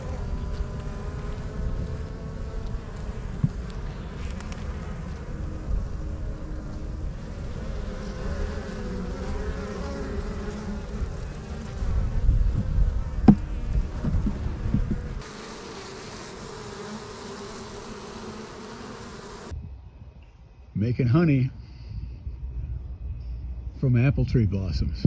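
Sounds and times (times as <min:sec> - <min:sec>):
honeybees buzzing: 0:00.0 - 0:19.5
low rumble with knocks: 0:12.0 - 0:15.2.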